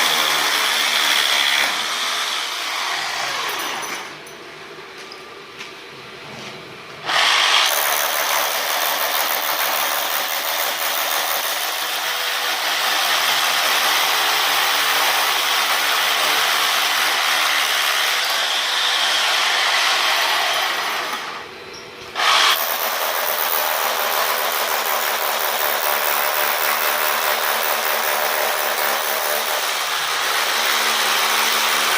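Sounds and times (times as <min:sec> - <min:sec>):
electric power tool running: 0:07.0 - 0:21.5, 0:22.2 - 0:31.9.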